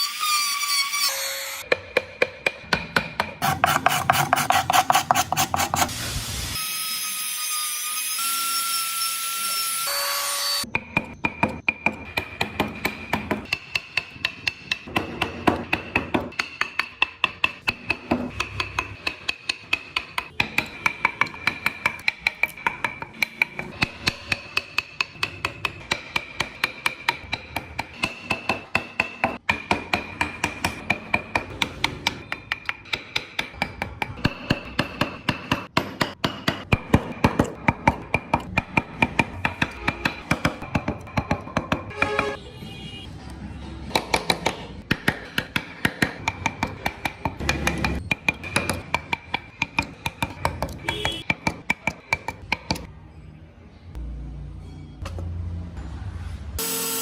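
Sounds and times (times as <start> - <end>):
mallet tapping chisel into wood: 1.7 - 5.7, 10.7 - 42.3, 43.9 - 52.9
wood rasping: 3.4 - 5.9.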